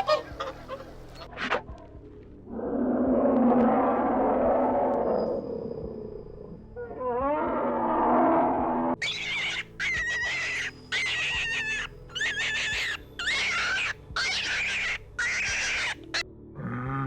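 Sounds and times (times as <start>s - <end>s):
harsh noisy animal call: 6.8s - 17.0s
shrill wavering animal calls: 9.0s - 16.3s.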